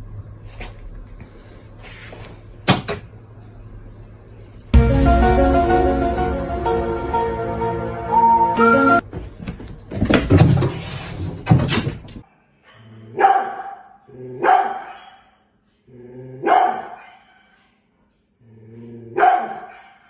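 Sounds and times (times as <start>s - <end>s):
dog barking: 13.1s - 15.4s, 16.4s - 17.4s, 19.1s - 20.0s.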